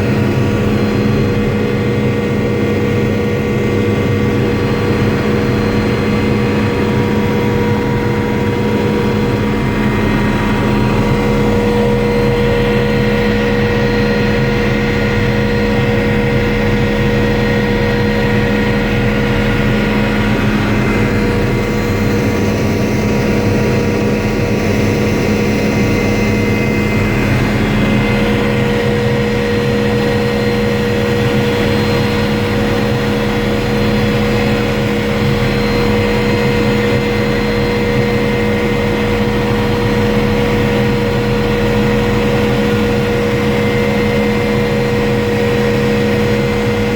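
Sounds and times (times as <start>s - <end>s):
helicopter engine and rotor drone: 0.0s - 46.9s
steady whining tones: 0.0s - 46.9s.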